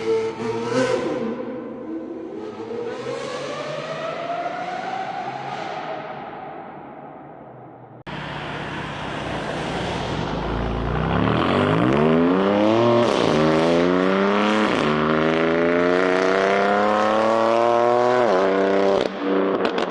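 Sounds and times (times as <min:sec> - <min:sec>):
car engine accelerating: 0:08.1 - 0:19.9.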